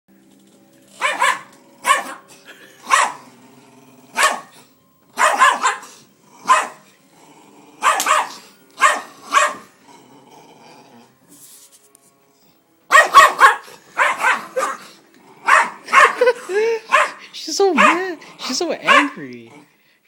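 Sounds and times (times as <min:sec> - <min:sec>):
dog barking: 0:01.0 - 0:02.2, 0:02.9 - 0:03.2, 0:04.2 - 0:04.6, 0:05.2 - 0:06.8, 0:07.8 - 0:09.7, 0:12.9 - 0:14.8, 0:15.4 - 0:16.3, 0:16.9 - 0:17.2, 0:17.8 - 0:18.1, 0:18.8 - 0:19.2.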